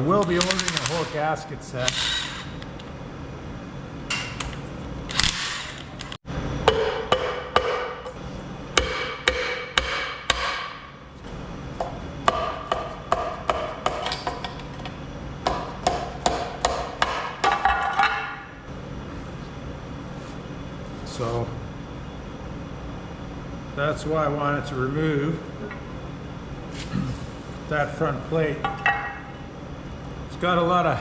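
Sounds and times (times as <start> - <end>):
hammer striking metal: 6.6 - 8.2, 8.8 - 10.9, 11.8 - 14.6, 15.5 - 18.4.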